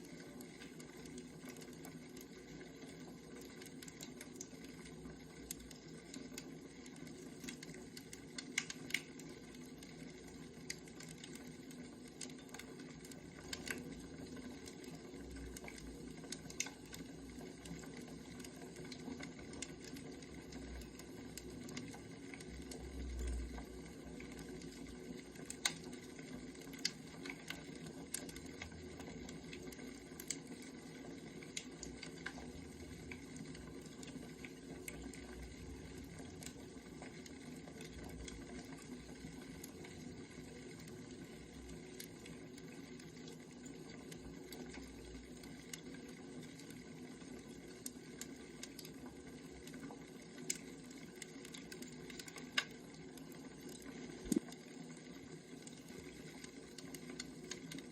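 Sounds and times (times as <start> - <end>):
firewood burning with crackles: 0.0 - 57.9.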